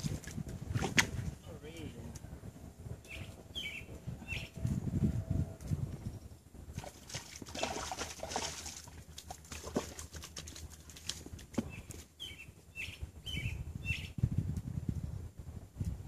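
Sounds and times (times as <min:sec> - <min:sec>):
small bird chirping: 0:03.0 - 0:04.6, 0:11.7 - 0:14.2.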